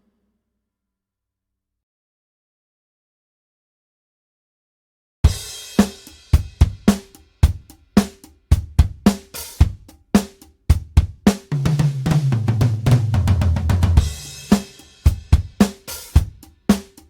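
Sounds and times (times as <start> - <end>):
drum kit groove: 5.2 - 17.0
drum fill of low hits: 10.7 - 16.9.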